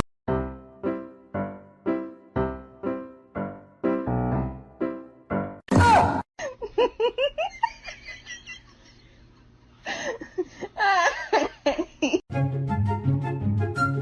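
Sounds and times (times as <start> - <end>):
person giggling: 6.4 - 9.2, 9.9 - 12.2.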